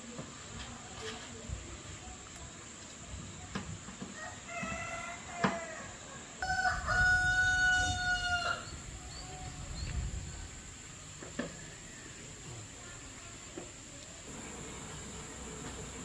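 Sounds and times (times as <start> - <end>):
rooster crowing: 4.2 - 8.8.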